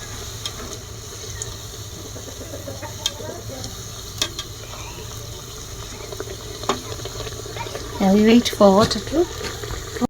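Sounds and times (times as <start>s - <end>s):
oil sizzling in a pan: 0.0s - 10.0s.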